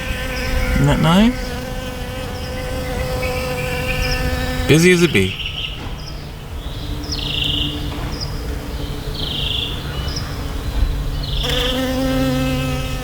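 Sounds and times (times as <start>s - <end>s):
bee buzzing: 0.0s - 5.4s, 11.4s - 13.0s.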